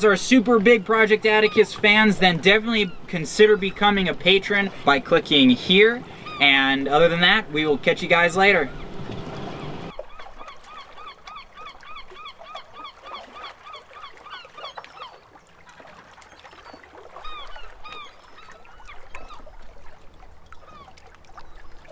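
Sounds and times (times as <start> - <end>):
bird calling short notes: 6.0 - 7.0.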